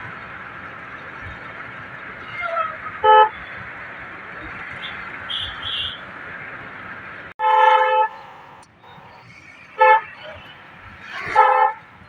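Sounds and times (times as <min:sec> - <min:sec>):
car road noise: 0:00.0 - 0:12.0
vehicle horn blast: 0:07.4 - 0:08.2, 0:11.3 - 0:11.8.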